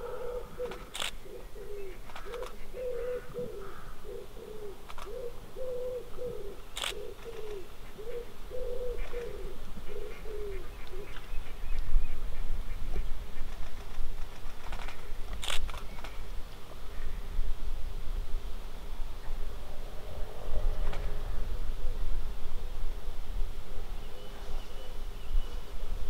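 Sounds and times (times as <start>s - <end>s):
bird cooing: 0.0s - 11.7s
sharp clicks: 0.6s - 1.2s, 4.9s - 5.2s, 6.8s - 7.5s, 13.5s - 16.2s.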